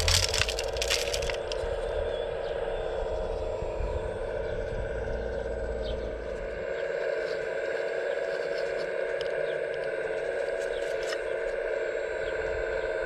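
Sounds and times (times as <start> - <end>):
crackling scrape: 0.0 - 1.6
low rumble: 0.0 - 7.0.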